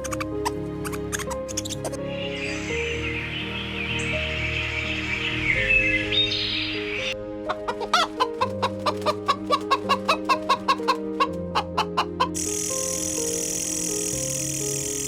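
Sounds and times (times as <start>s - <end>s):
background music: 0.0s - 15.0s
chicken clucking: 7.5s - 12.4s.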